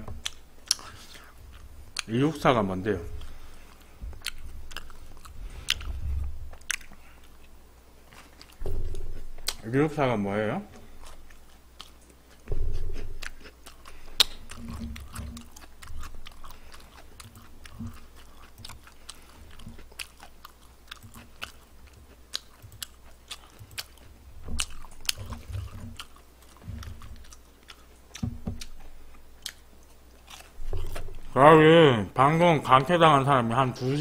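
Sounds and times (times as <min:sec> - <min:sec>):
wet chewing mouth clicks: 0:00.1 - 0:02.2, 0:03.1 - 0:09.7, 0:10.7 - 0:31.4
crunching bites: 0:10.8 - 0:31.4.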